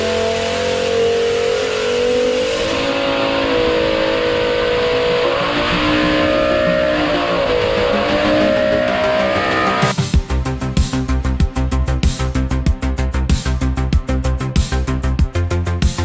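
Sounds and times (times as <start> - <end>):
race car engine screaming: 0.0 - 10.0.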